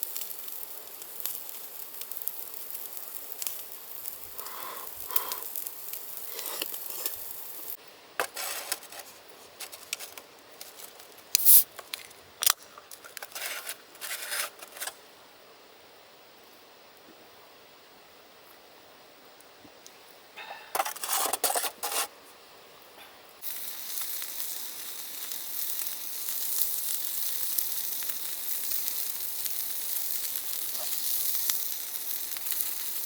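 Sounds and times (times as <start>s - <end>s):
meat sizzling over charcoal: 0.0s - 15.0s, 20.7s - 22.5s, 23.4s - 33.0s
sharp clicks and scrapes: 8.2s - 15.0s, 20.8s - 22.1s.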